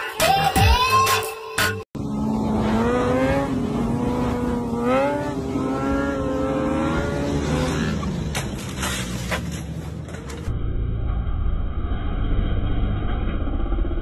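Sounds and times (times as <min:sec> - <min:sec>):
motorcycle engine at high revs: 0:02.0 - 0:09.5.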